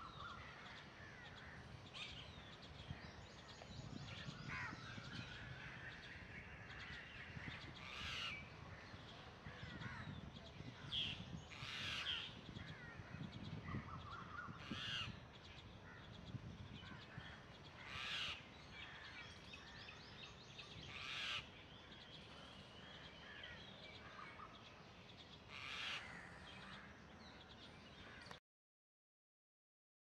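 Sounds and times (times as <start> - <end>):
crow-like cawing: 25.5 - 26.9.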